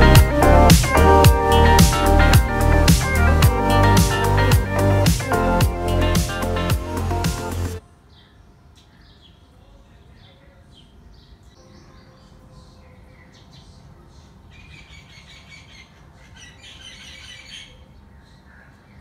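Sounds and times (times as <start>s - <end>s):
faint low background noise: 0.0s - 19.0s
small birds chirping: 7.2s - 19.0s.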